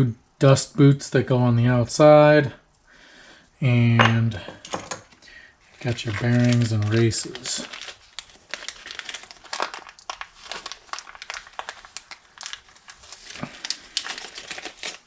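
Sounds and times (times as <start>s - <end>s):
packaging crinkling and rustling: 5.7s - 15.0s.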